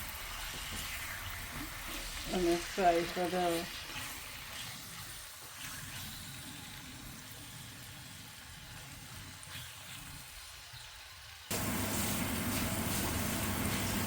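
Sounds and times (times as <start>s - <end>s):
chicken frying in oil: 0.0s - 14.0s.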